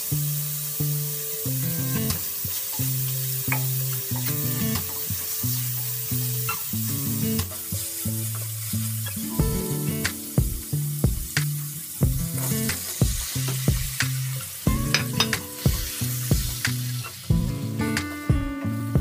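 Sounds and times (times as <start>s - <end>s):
food sizzling in oil: 0.0s - 19.0s
background music: 9.1s - 13.2s, 14.6s - 19.0s.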